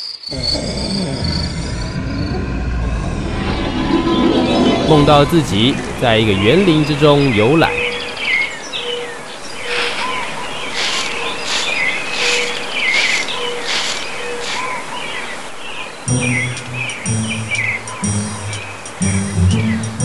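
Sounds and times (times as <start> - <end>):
birds chirping: 0.0 - 20.0
steady outdoor hiss: 0.2 - 20.0
music: 0.6 - 7.8, 16.1 - 20.0.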